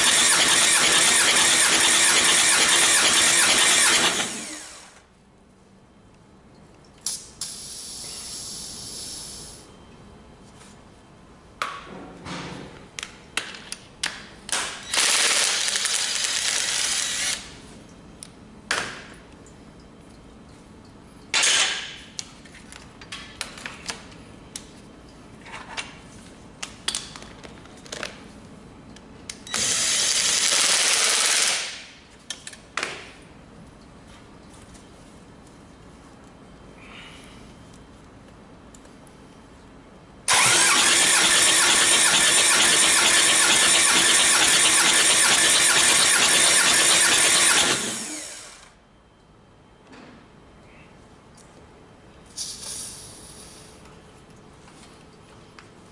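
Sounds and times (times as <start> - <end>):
bursts of hissing air: 52.4 - 53.7.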